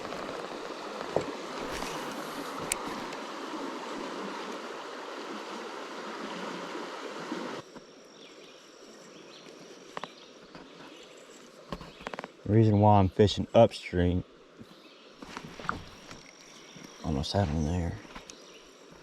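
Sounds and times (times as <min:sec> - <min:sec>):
river water rushing: 0:00.0 - 0:07.6
faint high steady tone: 0:16.1 - 0:19.0.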